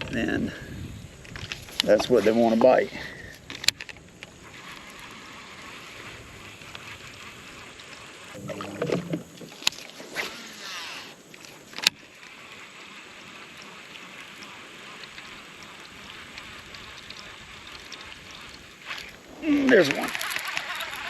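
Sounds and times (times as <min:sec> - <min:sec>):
water wash against boat hull: 0:07.7 - 0:21.0.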